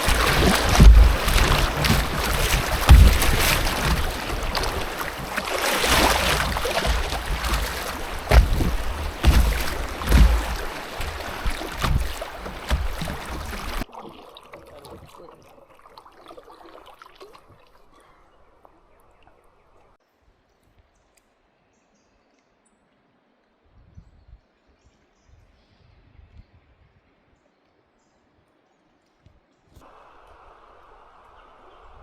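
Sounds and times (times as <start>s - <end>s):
sharp knocks: 0.0s - 13.8s
rushing water: 0.0s - 18.0s.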